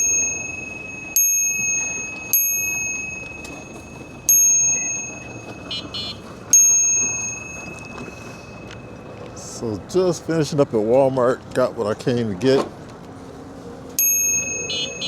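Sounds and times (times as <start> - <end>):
bicycle bell dinging: 0.0 - 9.5, 14.0 - 15.0.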